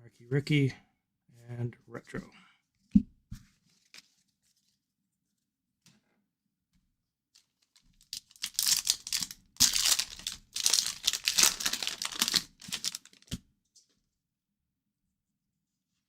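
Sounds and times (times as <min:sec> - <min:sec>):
wrapper tearing and crinkling: 0:07.6 - 0:13.4.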